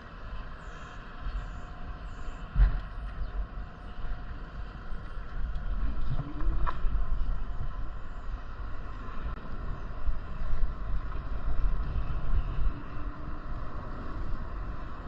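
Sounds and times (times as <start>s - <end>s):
wind buffeting microphone: 1.7s - 15.0s
rushing road noise: 4.0s - 15.0s.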